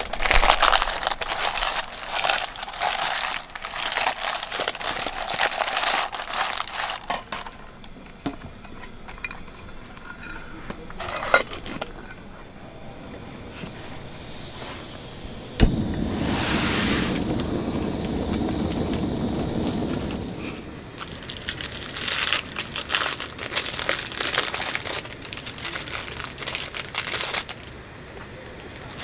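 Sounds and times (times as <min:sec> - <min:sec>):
crinkling and rustling crackles: 0:00.0 - 0:12.5, 0:13.2 - 0:29.0
rushing noise: 0:12.6 - 0:21.7
sharp click: 0:15.6 - 0:15.9.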